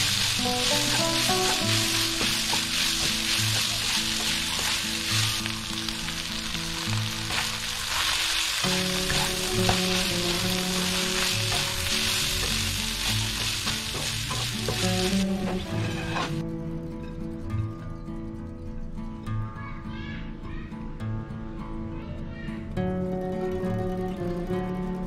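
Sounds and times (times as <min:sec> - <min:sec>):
meat sizzling in a wok: 0:00.0 - 0:16.4
spatula stirring in wok: 0:00.0 - 0:16.4.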